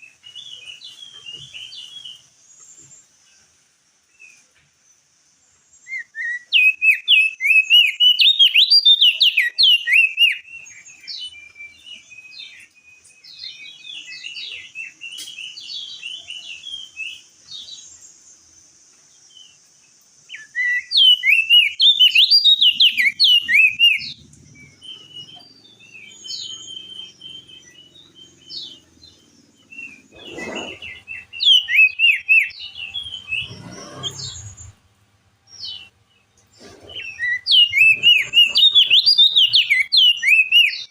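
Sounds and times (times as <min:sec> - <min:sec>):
bird chattering song: 0:05.8 - 0:18.5, 0:20.3 - 0:34.9, 0:35.5 - 0:40.9.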